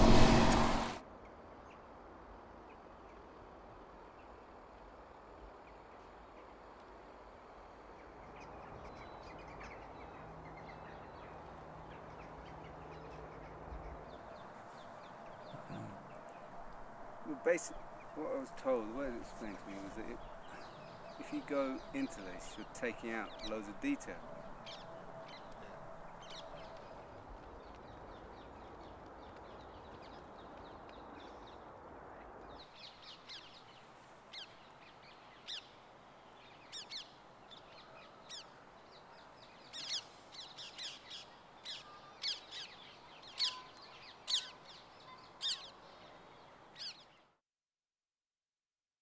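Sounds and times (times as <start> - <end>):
birds calling: 8.4 - 31.6, 39.2 - 46.0.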